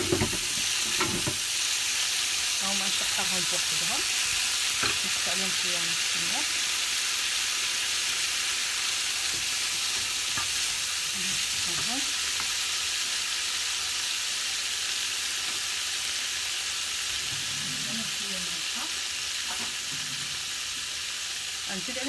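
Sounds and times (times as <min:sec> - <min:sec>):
shrimp sizzling in a frying pan: 0:00.0 - 0:22.0.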